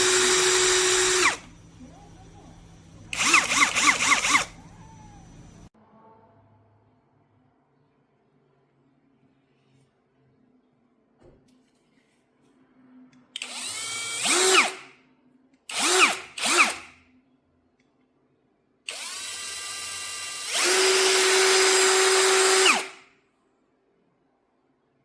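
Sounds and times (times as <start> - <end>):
cordless drill motor whining: 0.0 - 5.7, 13.4 - 14.8, 15.7 - 16.9, 18.9 - 23.0.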